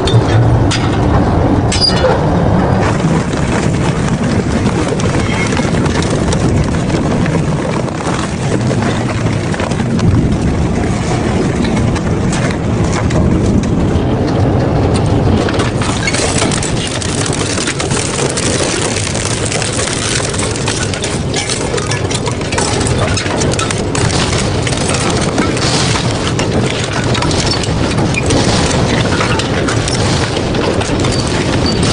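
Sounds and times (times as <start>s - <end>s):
shredder crunching metal scrap: 15.6s - 31.9s.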